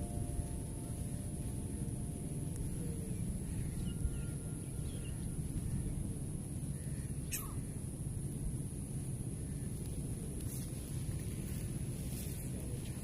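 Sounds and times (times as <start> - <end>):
wind rumbling on microphone: 0.0 - 13.0
faint bird chirps: 0.9 - 7.9.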